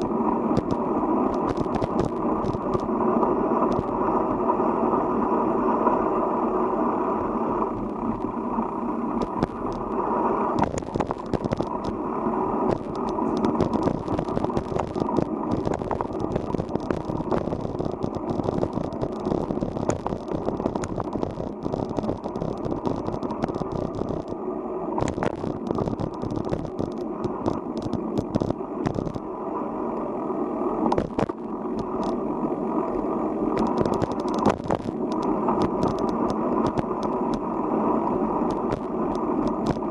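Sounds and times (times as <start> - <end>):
wind rushing over microphone: 7.2 - 24.3, 25.0 - 29.2, 33.5 - 39.9
bicycle clicks and rattles: 10.6 - 12.0, 12.7 - 24.4, 25.0 - 29.2, 33.6 - 37.4.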